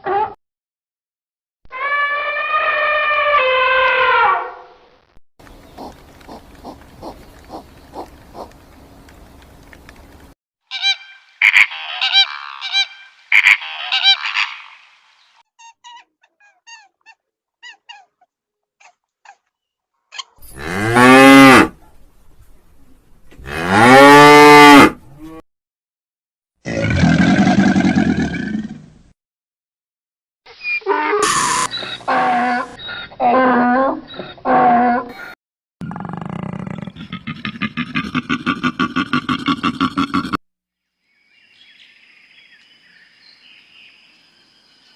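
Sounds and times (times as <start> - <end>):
animal chirps: 15.6 - 18.2, 30.5 - 33.3
cow mooing: 20.5 - 21.8, 23.4 - 25.4.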